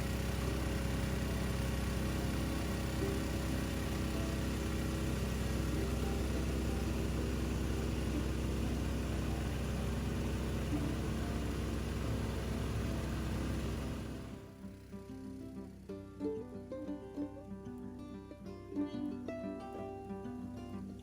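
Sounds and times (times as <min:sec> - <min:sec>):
gasoline engine running: 0:00.0 - 0:15.9.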